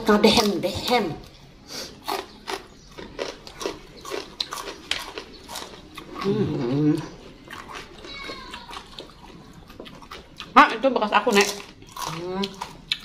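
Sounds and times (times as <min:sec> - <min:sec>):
crunching raw vegetables: 0:01.9 - 0:10.6, 0:11.2 - 0:13.0.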